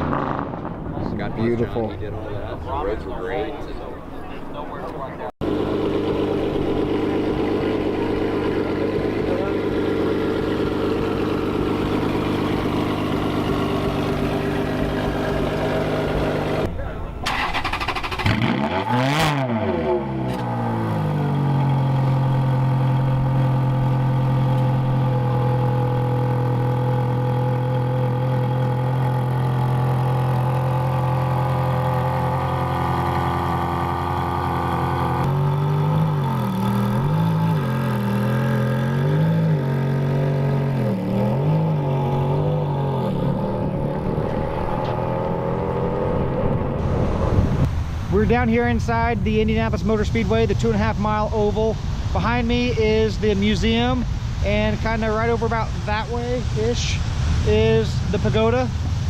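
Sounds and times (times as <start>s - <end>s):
car engine revving: 0.0s - 2.6s, 5.4s - 16.7s, 17.3s - 47.6s.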